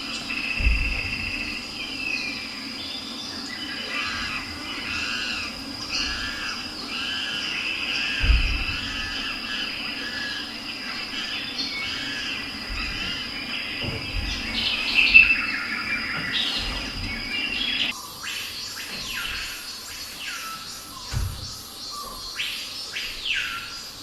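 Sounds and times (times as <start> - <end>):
bird-like chirping and squawking: 3.0 - 18.0.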